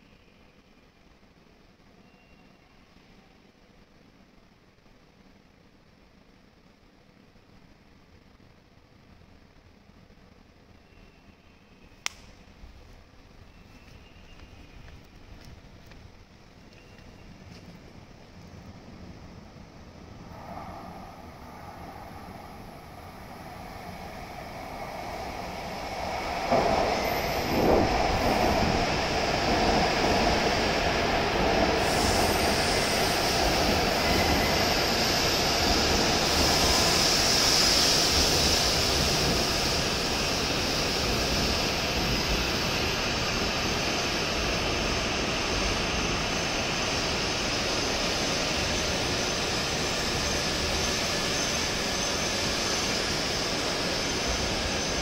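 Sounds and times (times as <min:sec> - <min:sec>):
train running noise: 0:11.9 - 0:55.0
high hiss: 0:19.6 - 0:55.0.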